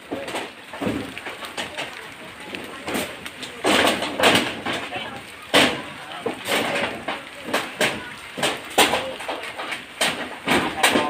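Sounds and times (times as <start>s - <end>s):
people talking: 0.0s - 11.0s.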